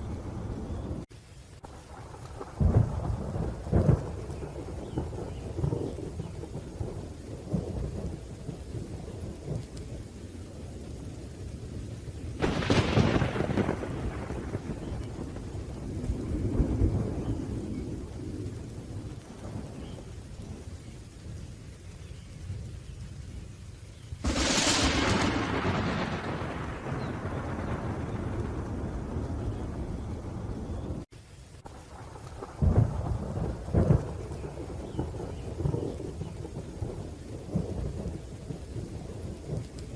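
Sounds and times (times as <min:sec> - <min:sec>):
low rolling thunder: 0:00.0 - 0:39.9
steady rain: 0:00.0 - 0:39.9
loud thunderclap: 0:02.0 - 0:09.9, 0:12.4 - 0:20.7, 0:24.2 - 0:31.1, 0:31.9 - 0:39.9.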